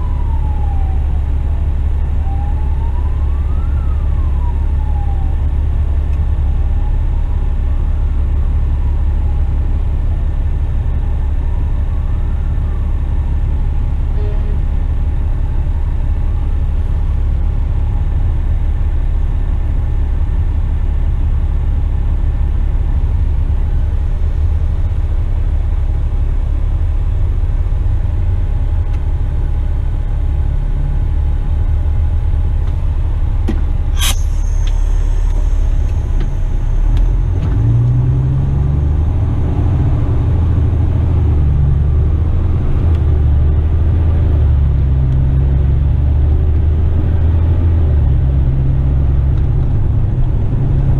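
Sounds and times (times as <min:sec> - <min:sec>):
road rumble: 0:00.0 - 0:50.9
truck diesel engine: 0:00.0 - 0:50.9
sharp click: 0:34.0 - 0:37.6.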